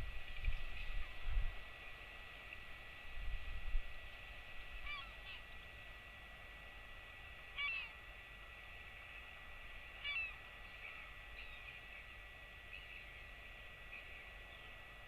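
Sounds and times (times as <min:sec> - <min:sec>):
faint steady high hum: 0:00.0 - 0:15.0
short bird calls: 0:04.8 - 0:05.6, 0:07.6 - 0:08.0, 0:10.0 - 0:11.9.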